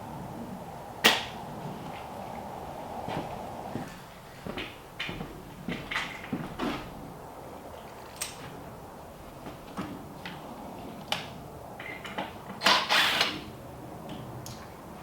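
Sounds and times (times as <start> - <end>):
loud noisy burst: 0.0 - 3.8.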